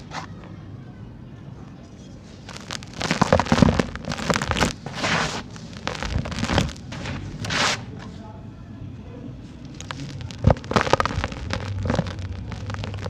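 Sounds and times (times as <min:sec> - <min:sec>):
sand-cement chunks crumbling: 0:02.4 - 0:07.9, 0:09.7 - 0:13.0.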